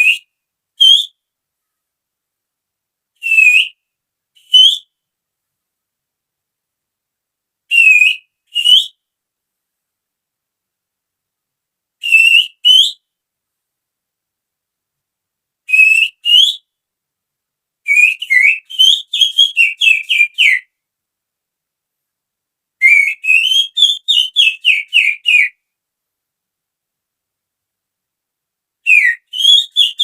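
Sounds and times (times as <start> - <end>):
person whistling bird call: 0.0 - 1.2, 3.2 - 3.8, 4.4 - 4.9, 7.7 - 9.0, 12.0 - 13.0, 15.7 - 16.6, 22.8 - 25.5, 28.9 - 30.0.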